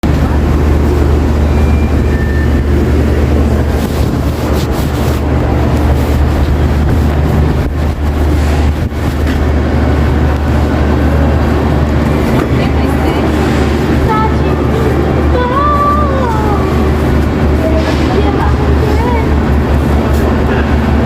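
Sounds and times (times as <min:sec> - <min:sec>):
low hum: 0:00.0 - 0:21.0
supermarket background noise: 0:00.0 - 0:21.0
high beep: 0:01.4 - 0:02.7.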